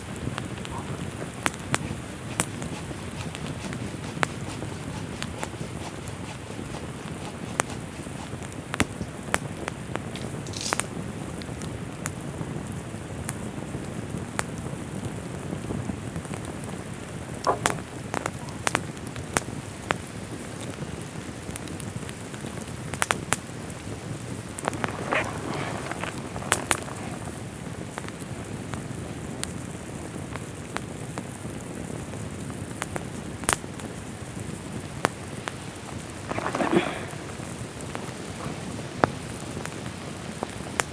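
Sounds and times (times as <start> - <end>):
brief rustles: 0.4 - 9.4, 10.1 - 10.9, 24.4 - 27.5, 35.8 - 39.2.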